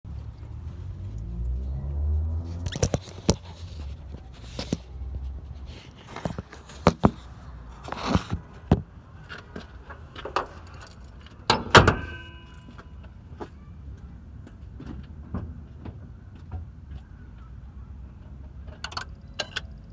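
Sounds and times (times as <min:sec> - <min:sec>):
car starter clicks and clunks: 0:09.3 - 0:12.9
keys jangling: 0:10.2 - 0:12.6.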